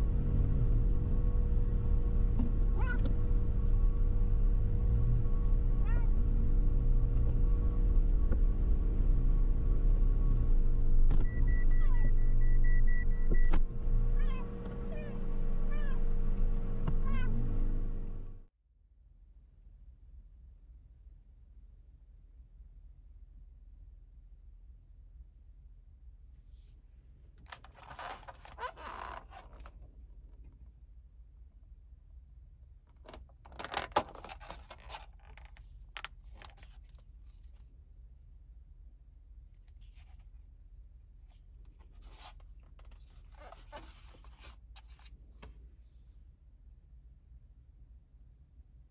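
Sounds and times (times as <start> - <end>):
van running rumble: 0.0 - 18.5, 27.4 - 30.5, 33.0 - 36.9, 41.7 - 45.1
cat meowing: 2.8 - 3.1, 5.8 - 6.1, 14.2 - 16.0, 17.0 - 17.4
handling rustles and scrapes: 26.4 - 30.5, 33.0 - 37.7, 39.7 - 40.4, 41.3 - 46.2.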